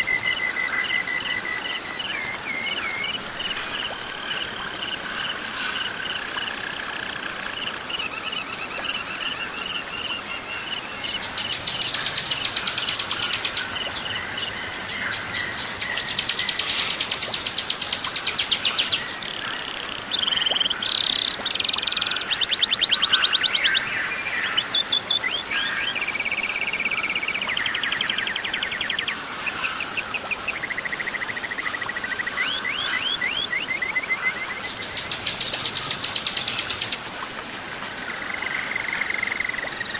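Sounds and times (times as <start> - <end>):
songbird trills and chirping: 11.0 - 19.1, 32.0 - 37.0.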